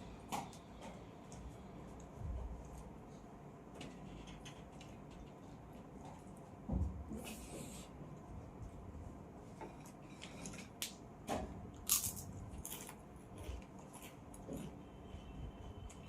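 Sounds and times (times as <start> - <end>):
biting and chewing: 11.7 - 14.8.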